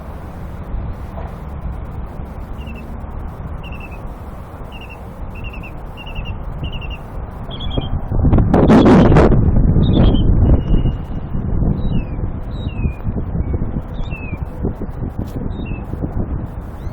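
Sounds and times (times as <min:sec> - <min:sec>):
steady low rumble: 0:00.0 - 0:16.9
wind on microphone: 0:00.0 - 0:16.9
songbird high downslurred notes: 0:02.2 - 0:07.8.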